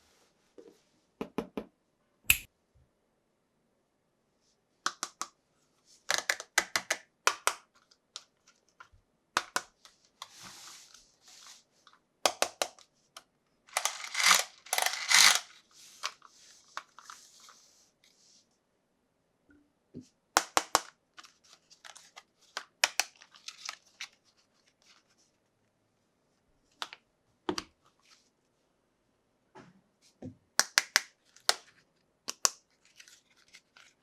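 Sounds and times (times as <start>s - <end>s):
packaging crinkling: 13.7s - 16.2s, 21.2s - 25.0s.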